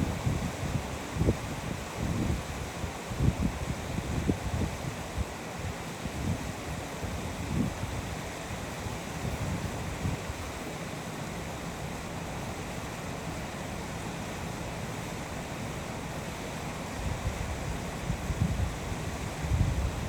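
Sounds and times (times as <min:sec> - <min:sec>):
wind buffeting microphone: 0:00.0 - 0:08.2, 0:08.8 - 0:10.6, 0:17.0 - 0:20.0.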